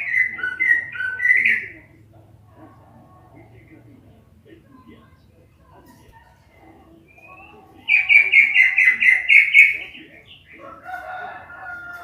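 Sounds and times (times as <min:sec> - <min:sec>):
bird chirping and warbling: 0:00.0 - 0:02.0, 0:06.6 - 0:11.0.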